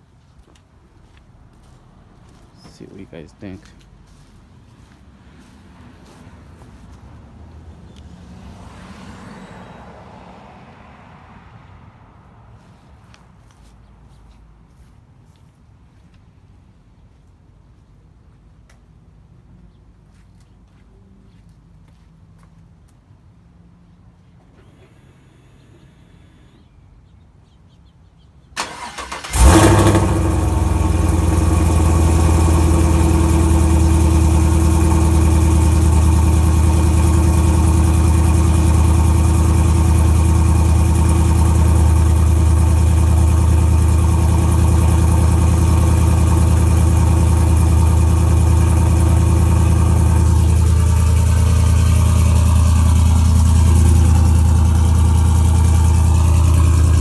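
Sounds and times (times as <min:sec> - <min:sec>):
truck engine cold start and idle: 0:28.6 - 0:57.0.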